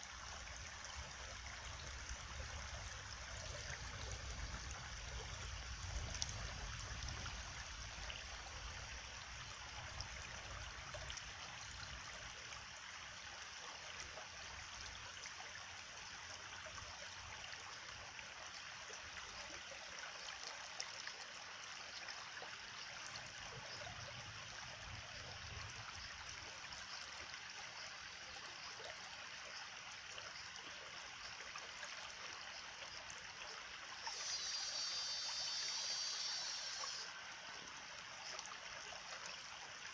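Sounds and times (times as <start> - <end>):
stream water flowing: 0.0 - 39.9
loud high hiss: 34.1 - 37.1.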